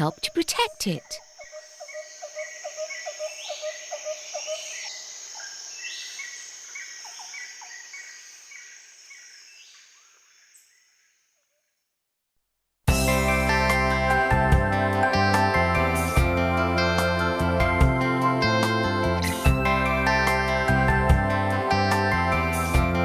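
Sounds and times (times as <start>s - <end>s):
insects buzzing: 0.0s - 11.4s.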